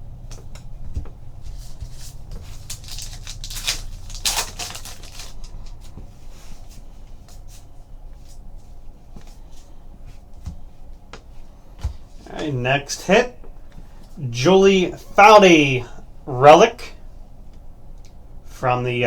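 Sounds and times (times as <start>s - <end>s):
steady low hum: 0.0s - 19.0s
wrapper crinkling: 1.6s - 5.9s
cards clicking and rustling: 1.6s - 6.0s.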